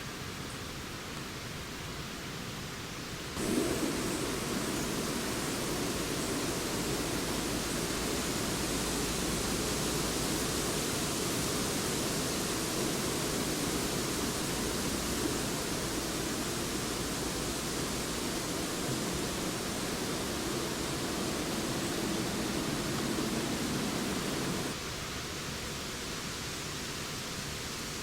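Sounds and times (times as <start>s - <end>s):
wind rushing through trees: 0.0s - 28.0s.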